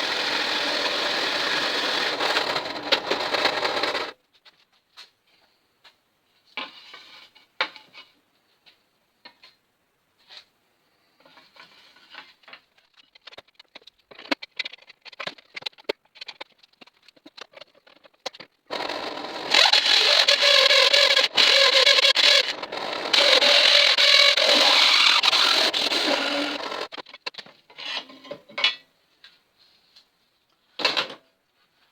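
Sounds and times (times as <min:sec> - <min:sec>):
loud steady rasping: 0:00.0 - 0:04.1, 0:18.7 - 0:27.0.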